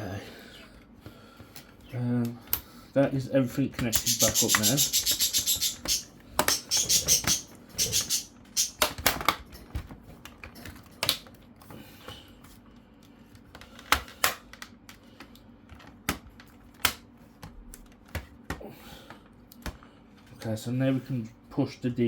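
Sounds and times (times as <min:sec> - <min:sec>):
plastic laptop casing clicks: 0:08.8 - 0:11.4.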